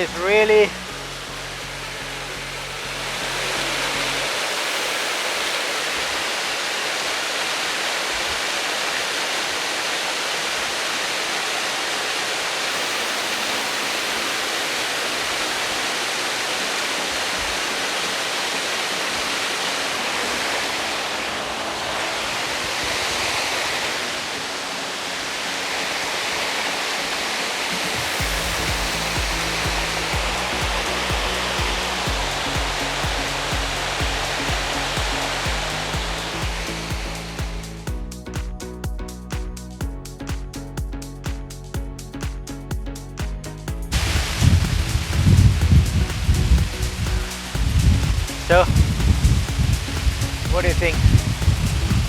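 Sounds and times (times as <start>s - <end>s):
low rumble: 0.0s - 4.3s, 28.2s - 52.0s
waterfall roaring: 0.0s - 37.9s, 43.9s - 52.0s.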